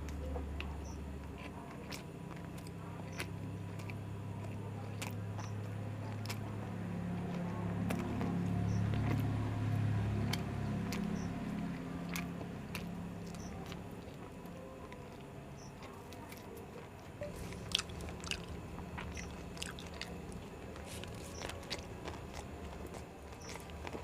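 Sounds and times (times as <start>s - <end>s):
chewing and biting food: 0.0s - 24.0s
mouth clicks: 17.2s - 22.5s.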